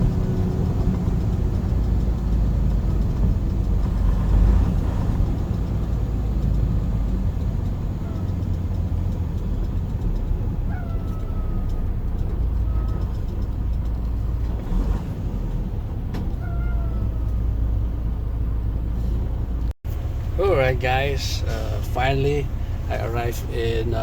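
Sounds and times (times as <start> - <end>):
road noise inside cab: 0.0 - 24.0
truck engine rumble: 0.0 - 24.0
short falling squeaks: 10.6 - 13.6, 16.1 - 17.8.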